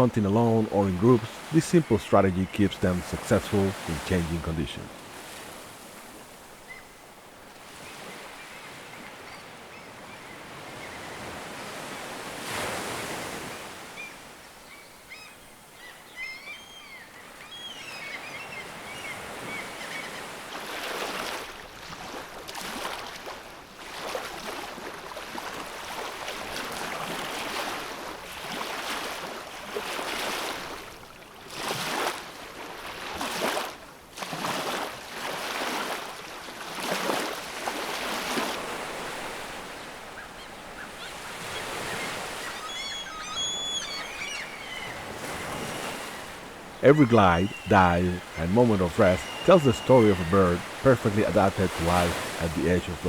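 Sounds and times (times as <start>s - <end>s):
ocean waves breaking: 0.0s - 14.6s, 18.2s - 53.0s
high bird chirps: 41.5s - 45.6s, 46.8s - 50.8s.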